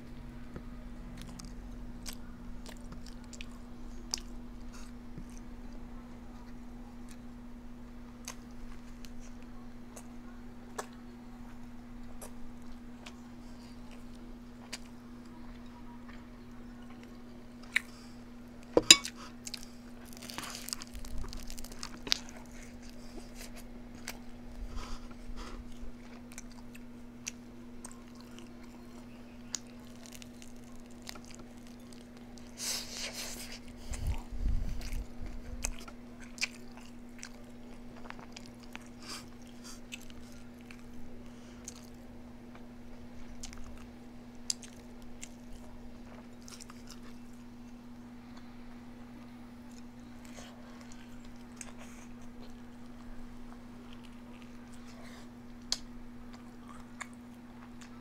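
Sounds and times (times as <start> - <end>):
person chewing and biting food: 18.8 - 41.0, 41.6 - 48.5, 49.7 - 53.0, 53.8 - 58.0.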